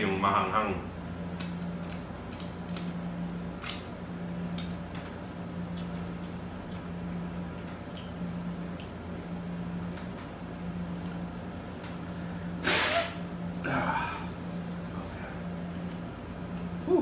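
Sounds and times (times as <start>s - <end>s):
man blowing his nose: 12.6s - 13.2s.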